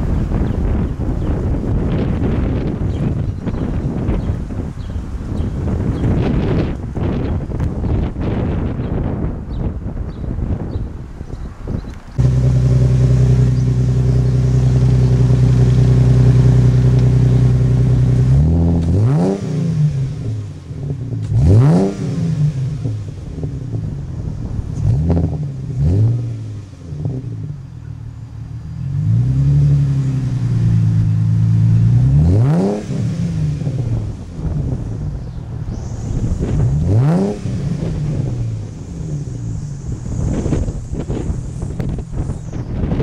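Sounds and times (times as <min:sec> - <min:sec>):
car engine revving: 0:12.2 - 0:43.0.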